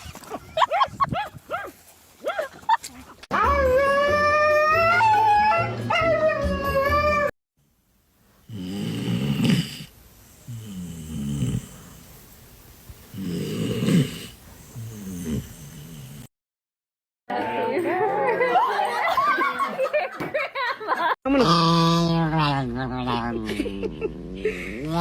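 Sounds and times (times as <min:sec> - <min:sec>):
dog snoring: 0:10.5 - 0:11.9, 0:13.1 - 0:16.3.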